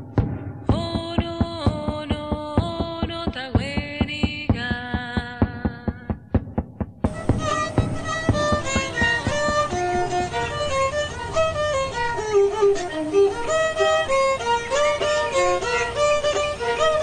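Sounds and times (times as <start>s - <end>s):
low beats: 0.0s - 12.6s
violin playing quick melody: 7.1s - 17.0s.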